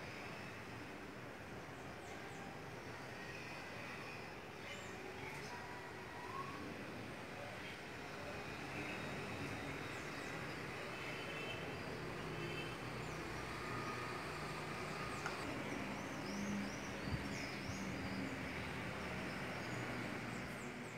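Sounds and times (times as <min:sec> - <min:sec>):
small birds chirping: 0:12.9 - 0:20.9.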